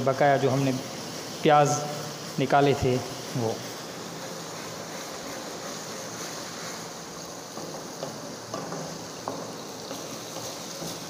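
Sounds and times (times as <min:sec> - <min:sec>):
spices sizzling in hot oil: 0:00.0 - 0:11.0
wooden spatula knocking on pot: 0:07.6 - 0:11.0.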